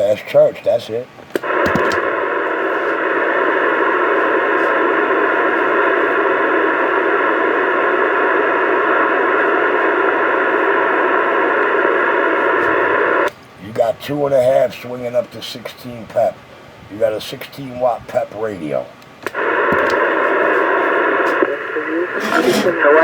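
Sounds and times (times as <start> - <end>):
radio static rush: 1.4 - 13.3, 19.3 - 23.0.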